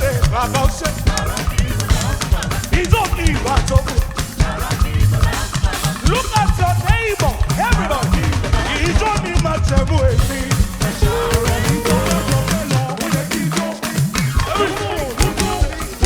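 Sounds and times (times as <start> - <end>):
drum kit and bass beat: 0.0 - 16.0
gospel band music: 0.0 - 16.0
person singing runs: 8.9 - 16.0.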